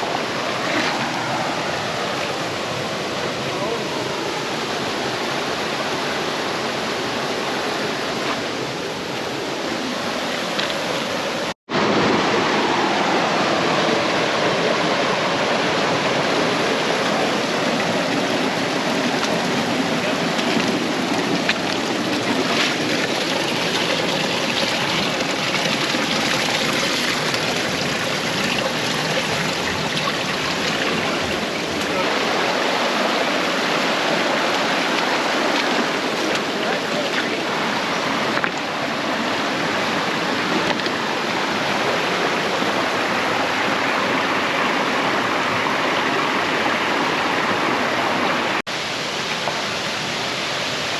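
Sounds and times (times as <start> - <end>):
creek water flowing: 0.0 - 50.9.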